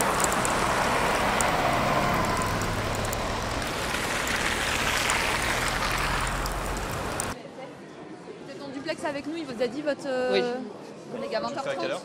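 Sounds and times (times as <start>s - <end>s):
road traffic engines: 0.0s - 7.4s.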